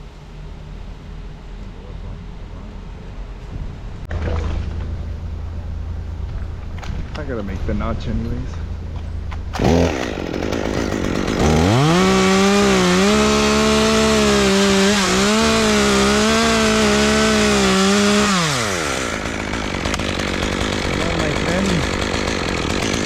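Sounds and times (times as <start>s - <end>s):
chainsaw revving and cutting: 9.6s - 23.0s.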